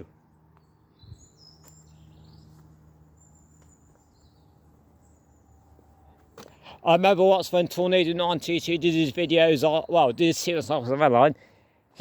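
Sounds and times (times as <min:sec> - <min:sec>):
low steady hum: 0:00.0 - 0:09.4
faint birds chirping: 0:00.0 - 0:12.0.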